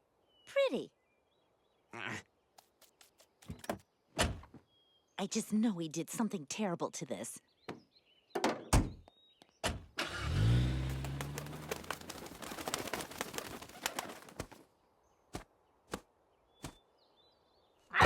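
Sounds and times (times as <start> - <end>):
rapid fluttering and clicking: 10.9 - 14.6.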